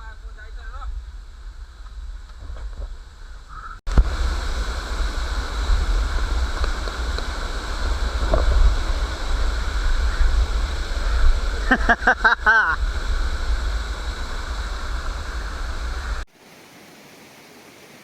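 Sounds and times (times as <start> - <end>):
wind rumble on microphone: 0.0 - 16.3
falling water rushing: 3.9 - 18.0.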